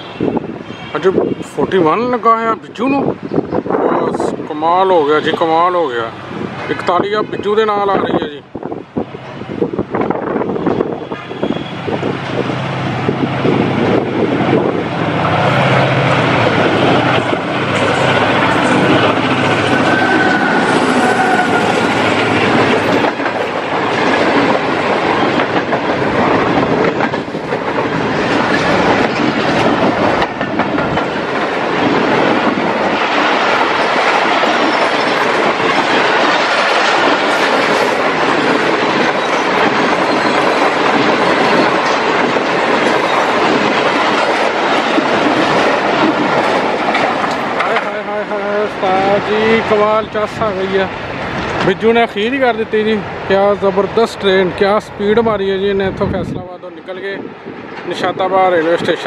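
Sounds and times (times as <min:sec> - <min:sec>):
diesel locomotive passing: 0:00.0 - 0:59.0
train wheels clattering on rails: 0:09.8 - 0:55.4.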